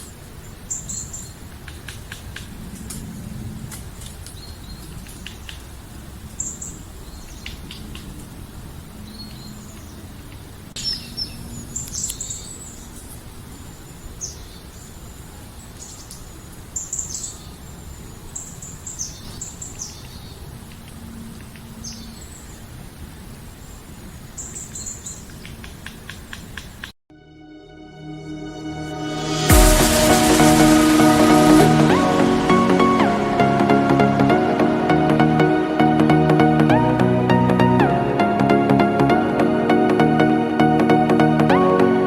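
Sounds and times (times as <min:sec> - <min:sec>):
low outdoor background noise: 0:00.0 - 0:27.0.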